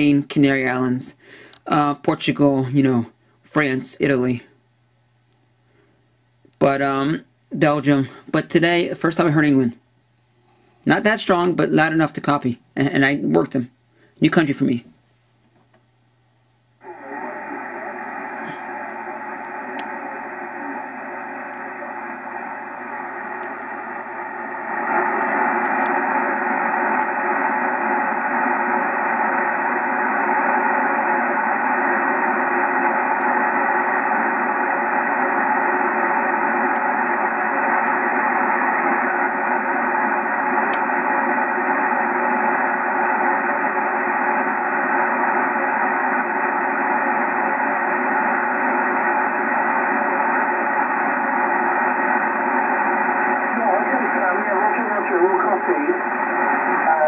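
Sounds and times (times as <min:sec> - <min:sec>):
radio static hiss: 0:00.0 - 0:04.6, 0:06.6 - 0:09.8, 0:10.8 - 0:15.0, 0:16.8 - 0:57.0
weak radio voice: 0:16.8 - 0:57.0.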